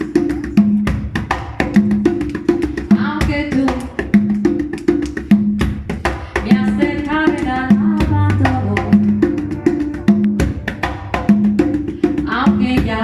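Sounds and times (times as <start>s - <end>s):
drum tones: 0.0s - 13.0s
held bass note: 7.9s - 12.0s
short melody line: 8.1s - 11.6s.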